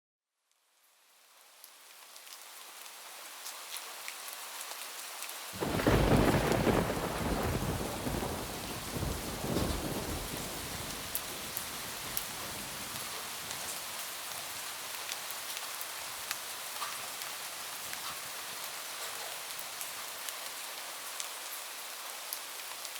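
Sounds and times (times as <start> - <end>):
heavy rain on a roof: 1.1 - 22.9
thunder: 5.6 - 13.1.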